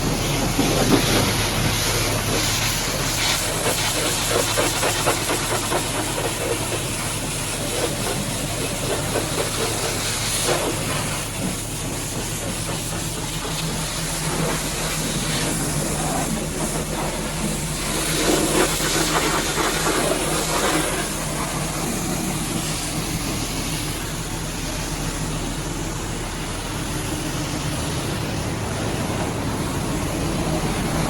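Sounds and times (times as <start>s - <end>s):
pressure washer jet hissing: 0.0s - 31.0s
low motor hum: 10.7s - 31.0s.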